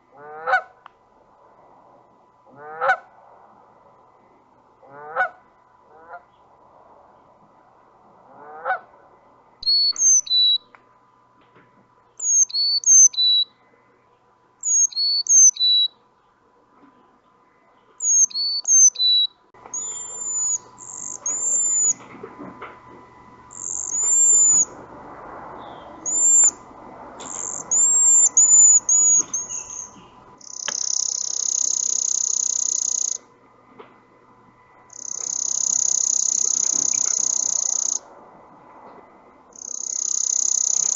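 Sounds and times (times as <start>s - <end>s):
faint background hiss: 0.0s - 40.9s
goose honking: 0.1s - 0.7s, 2.5s - 3.1s, 4.8s - 6.3s, 8.3s - 8.9s
buzzy high bird call: 9.6s - 10.7s, 12.2s - 13.6s, 14.6s - 16.0s, 18.0s - 22.1s, 23.4s - 24.9s, 25.6s - 33.3s, 34.9s - 38.0s, 39.5s - 40.9s
thin high bird whistles: 9.6s - 10.7s, 12.2s - 13.5s, 14.6s - 16.0s, 18.0s - 22.0s, 23.5s - 24.8s, 25.6s - 26.6s, 27.2s - 33.2s, 34.9s - 38.0s
bird three-note phrase: 19.8s - 22.0s.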